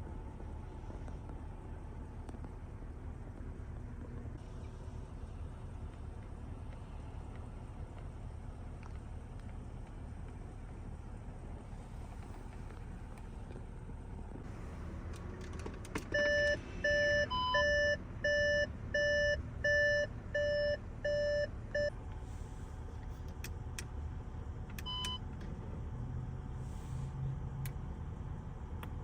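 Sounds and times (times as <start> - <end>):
car warning chime beeping: 16.1 - 21.9, 24.8 - 25.2.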